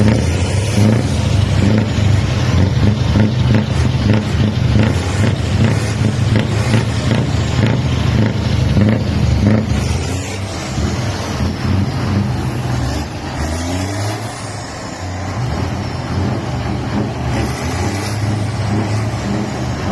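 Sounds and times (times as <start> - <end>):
truck diesel engine running: 0.0 - 19.9.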